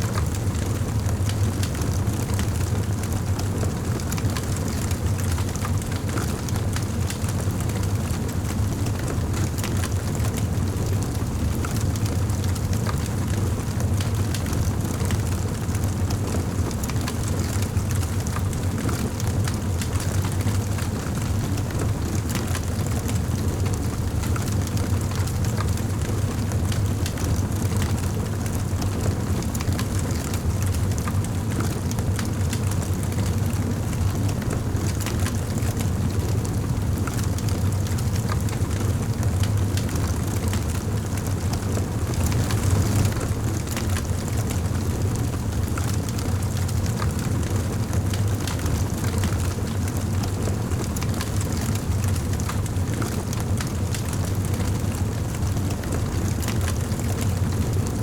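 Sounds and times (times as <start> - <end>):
flames rumbling: 37.9 - 47.2
fire crackling and popping: 39.1 - 47.2.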